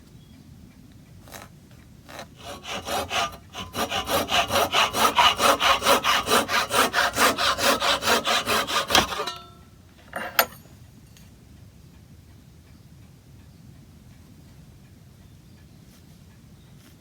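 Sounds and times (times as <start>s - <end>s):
hand saw cutting wood: 1.2s - 1.5s, 2.1s - 9.6s, 10.2s - 10.5s.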